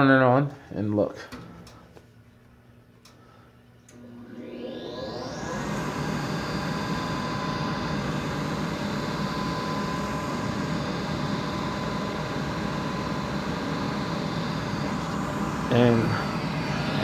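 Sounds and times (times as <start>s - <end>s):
furnace fan motor running: 3.0s - 17.0s
thin whine: 3.9s - 17.0s.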